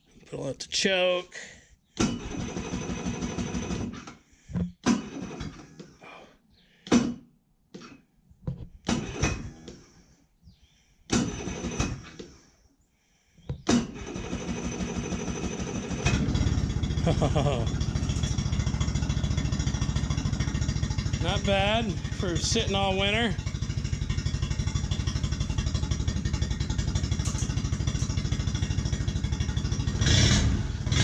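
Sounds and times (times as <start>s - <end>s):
outboard motor starter cranking: 2.0s - 6.0s, 8.6s - 9.9s, 11.1s - 12.4s, 13.6s - 31.0s
outboard motor running: 13.9s - 31.0s.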